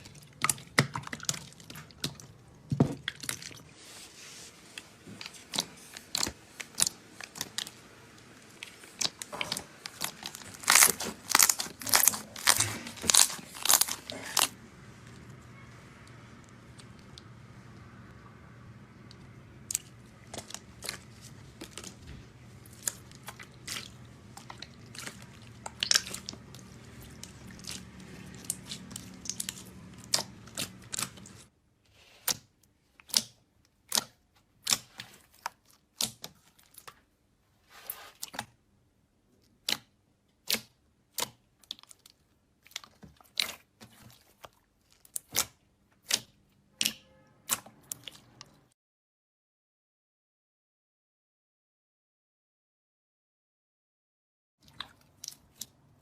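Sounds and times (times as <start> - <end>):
slime clicking and crackling: 5.2 - 14.6, 19.0 - 31.4, 32.2 - 37.1, 39.4 - 48.5.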